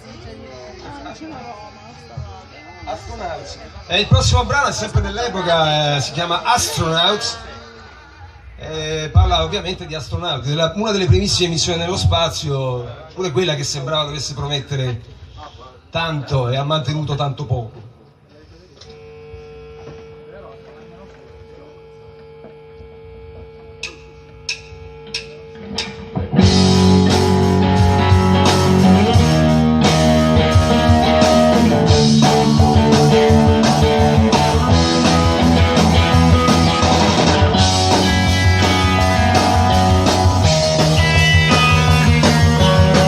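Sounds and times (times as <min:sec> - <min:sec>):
live rock band playing: 0:02.9 - 0:12.5, 0:25.1 - 0:43.0.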